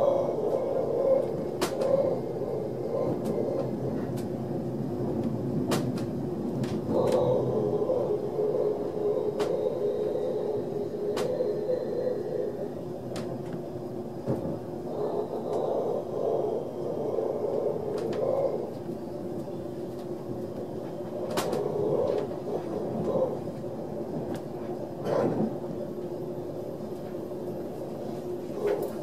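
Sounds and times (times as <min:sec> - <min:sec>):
faint hum: 0:00.0 - 0:29.0
train wheels rumbling on rail: 0:00.0 - 0:29.0.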